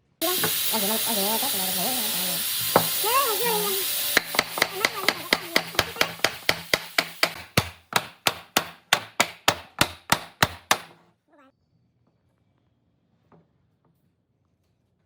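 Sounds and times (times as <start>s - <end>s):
hammering on wood: 2.7s - 3.0s, 4.2s - 11.0s.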